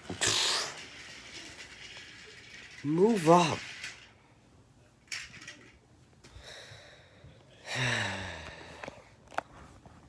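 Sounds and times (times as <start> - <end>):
soft breaths: 6.2 - 10.0.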